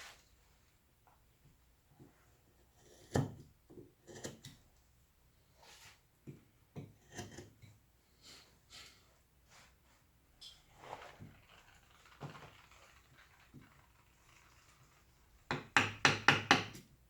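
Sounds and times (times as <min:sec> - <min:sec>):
carving tool scraping wood: 0:02.6 - 0:03.4, 0:04.0 - 0:04.6, 0:06.8 - 0:07.6.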